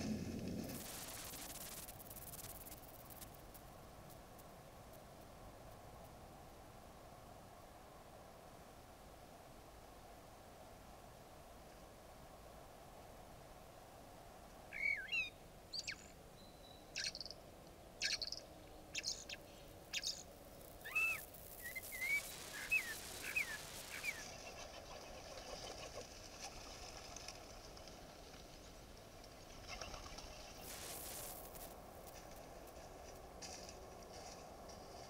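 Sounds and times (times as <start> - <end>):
bird chirps: 14.7 - 17.4, 18.0 - 25.1
bird call notes: 20.9 - 24.6.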